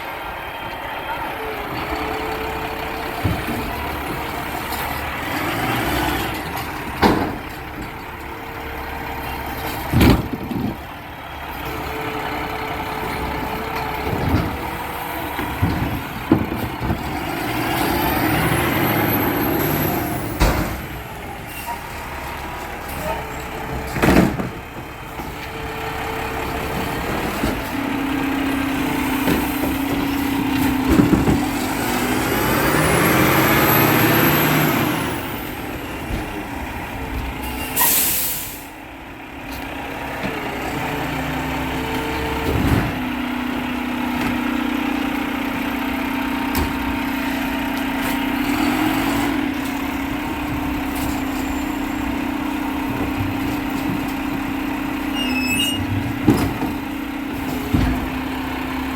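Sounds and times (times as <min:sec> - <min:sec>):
garbage truck diesel engine: 0:00.0 - 0:58.9
air brake hiss: 0:37.8 - 0:38.7.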